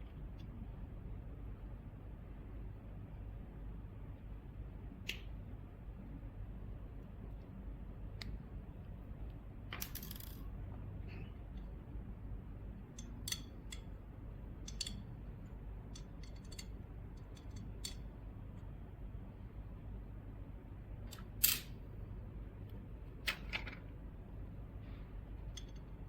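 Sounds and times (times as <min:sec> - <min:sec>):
low steady hum: 0:00.0 - 0:26.0
tools and parts clicking: 0:09.7 - 0:10.4, 0:12.9 - 0:14.0, 0:14.6 - 0:18.1, 0:25.5 - 0:26.0.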